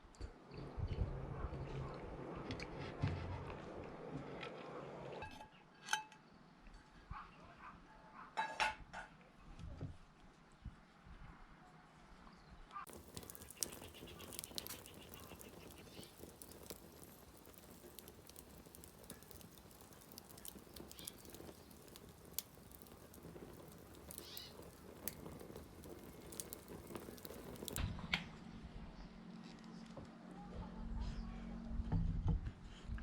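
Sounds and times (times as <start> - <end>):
campfire crackling: 12.8 - 27.8.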